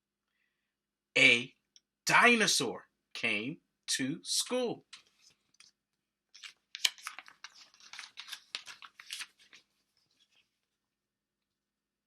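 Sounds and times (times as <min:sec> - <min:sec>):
paper rustling: 0:06.3 - 0:10.7.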